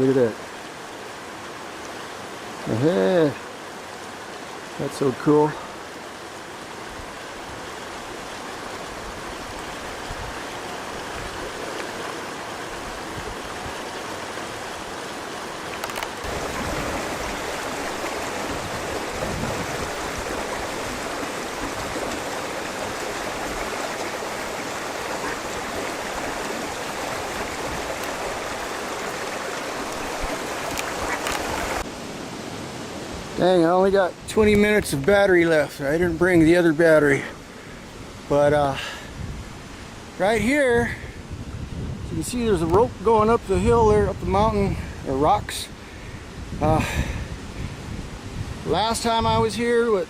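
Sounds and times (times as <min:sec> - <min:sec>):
creek flowing over rocks: 0:00.0 - 0:50.0.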